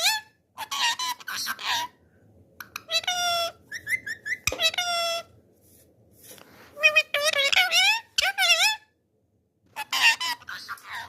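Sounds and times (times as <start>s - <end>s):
parrot calling: 0.0s - 2.0s, 2.6s - 5.4s, 6.8s - 9.0s, 9.7s - 11.0s.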